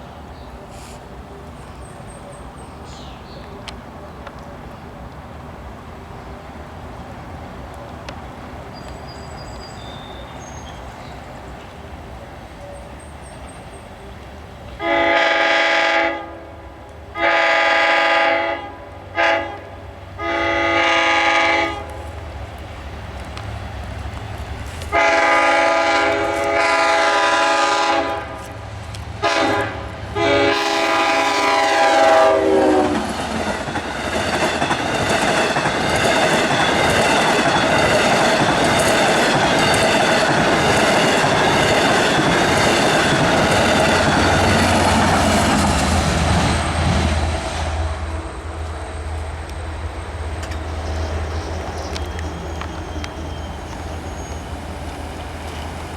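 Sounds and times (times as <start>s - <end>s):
train horn blasts: 14.8s - 22.1s, 24.9s - 28.6s, 29.2s - 33.1s
train wheels clacking on rails: 21.8s - 47.8s.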